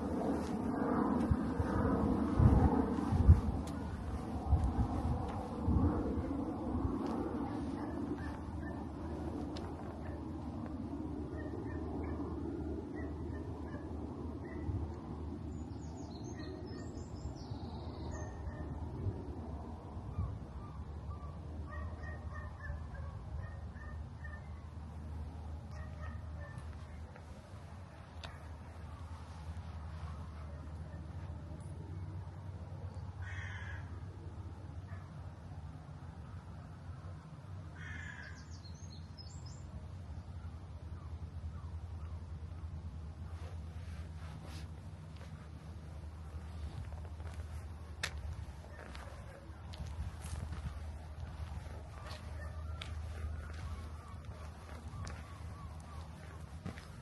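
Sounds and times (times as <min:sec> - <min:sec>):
low rumble: 0:00.0 - 0:11.4
birds chirping: 0:07.2 - 0:10.5, 0:44.0 - 0:57.0.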